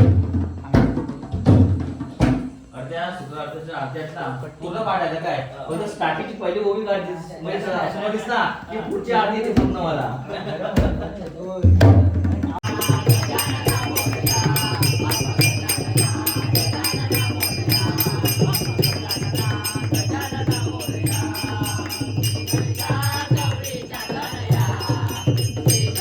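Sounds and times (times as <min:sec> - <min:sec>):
small metal percussion beat: 0:10.8 - 0:26.0
group singing devotional song: 0:12.4 - 0:26.0.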